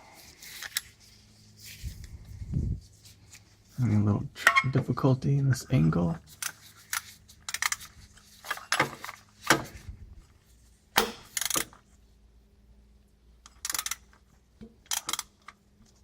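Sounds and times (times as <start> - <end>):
metal wrench clicks and clinks: 11.3 - 11.7, 13.4 - 14.0, 14.9 - 15.3.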